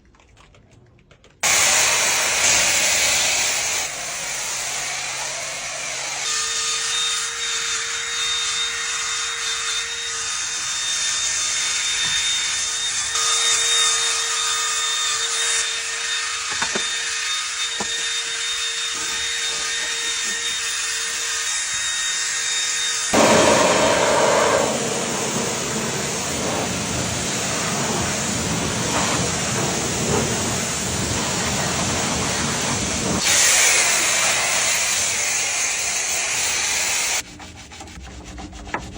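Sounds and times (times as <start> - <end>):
power tool hissing and whining: 1.4 - 37.2
rough rushing noise: 23.2 - 33.2.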